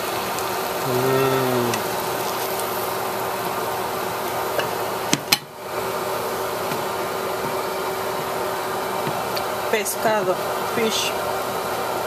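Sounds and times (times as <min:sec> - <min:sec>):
fish frying in oil: 0:00.0 - 0:08.9.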